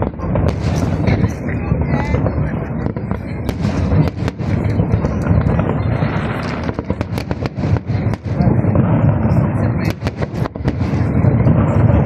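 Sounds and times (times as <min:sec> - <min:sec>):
fireworks bangs and crackles: 0:00.0 - 0:12.0
low rumble: 0:00.0 - 0:12.0.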